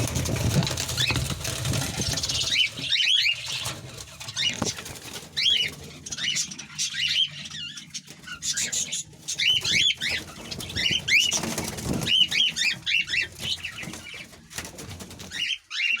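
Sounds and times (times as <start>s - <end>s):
wings flapping: 0.0s - 15.6s
budgerigars chattering: 5.4s - 14.3s, 15.2s - 16.0s.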